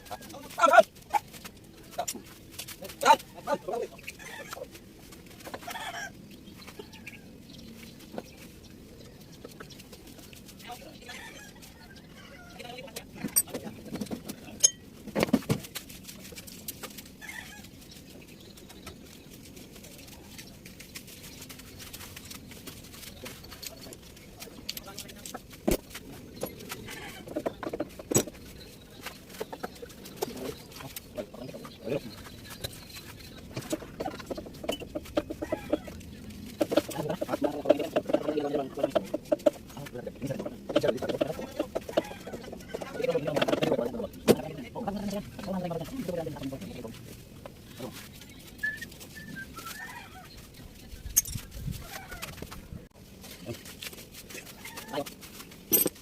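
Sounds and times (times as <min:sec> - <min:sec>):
chickens clucking: 0:00.0 - 0:15.6, 0:21.2 - 0:55.1
chicken clucking: 0:26.4 - 0:44.2.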